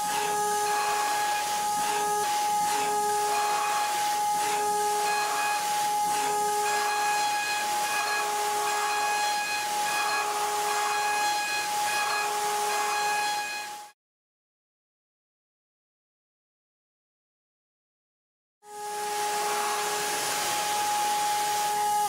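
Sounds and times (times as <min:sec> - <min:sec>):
intermittent tones: 0:00.0 - 0:13.9, 0:18.7 - 0:22.0
machine high-pitched whine: 0:00.0 - 0:13.9, 0:18.7 - 0:22.0
continuous hiss: 0:18.8 - 0:22.0.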